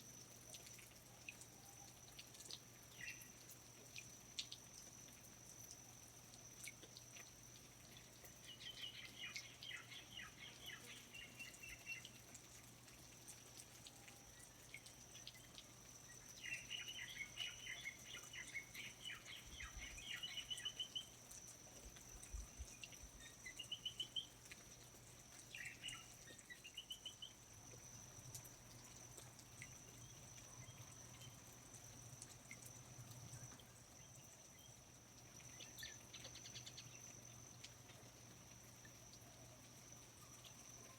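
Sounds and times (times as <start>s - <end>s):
songbird twittering chirps: 2.9s - 3.4s, 8.4s - 12.2s, 14.3s - 21.3s, 22.1s - 24.5s, 25.5s - 27.4s, 35.4s - 37.6s.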